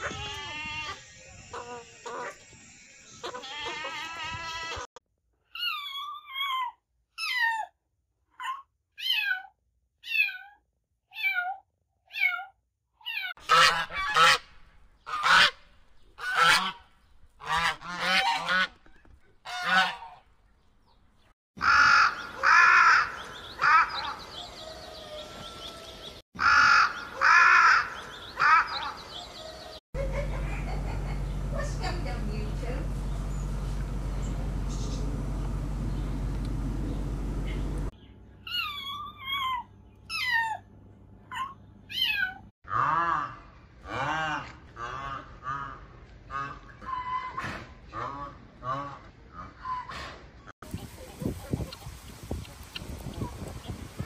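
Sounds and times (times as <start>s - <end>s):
geese honking: 0.0s - 2.4s, 13.4s - 20.4s, 21.6s - 25.8s, 26.4s - 29.4s.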